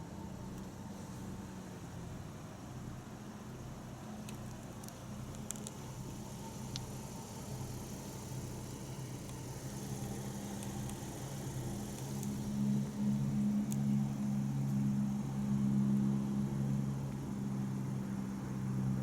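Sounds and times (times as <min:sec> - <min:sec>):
car engine idling: 0:03.9 - 0:19.0.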